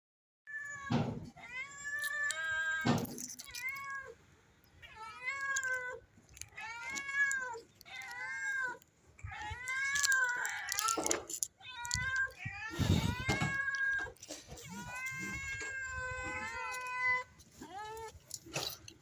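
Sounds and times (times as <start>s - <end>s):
cat meowing: 4.8s - 18.8s.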